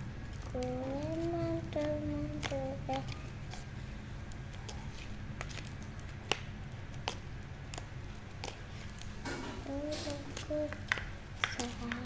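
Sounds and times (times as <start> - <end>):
slime squished by hand: 0.3 - 12.0
child humming: 0.5 - 3.3, 9.6 - 10.9.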